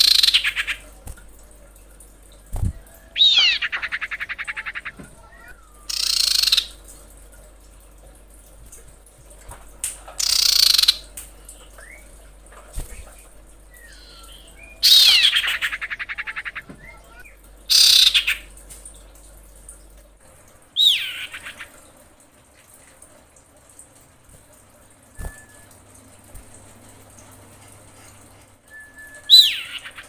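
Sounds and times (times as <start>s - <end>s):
bird harsh high calls: 0.0s - 0.9s, 2.8s - 6.8s, 10.2s - 11.1s, 13.8s - 18.5s, 20.8s - 21.8s, 29.3s - 30.0s.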